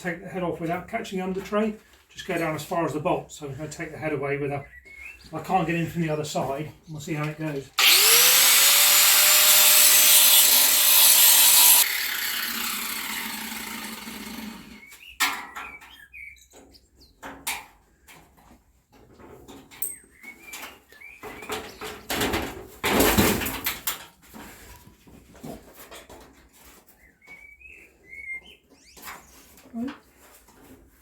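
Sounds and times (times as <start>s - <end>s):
electric grinder grinding bolt: 7.8s - 14.8s.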